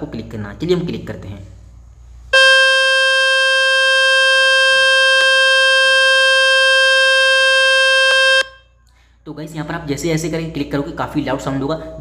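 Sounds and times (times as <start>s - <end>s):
loud buzzing tone: 2.3s - 8.8s.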